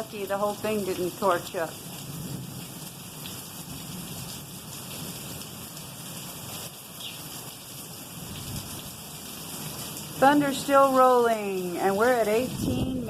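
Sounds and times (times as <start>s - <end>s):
steady rain falling: 0.0s - 13.0s
rolling thunder rumble: 12.3s - 13.0s.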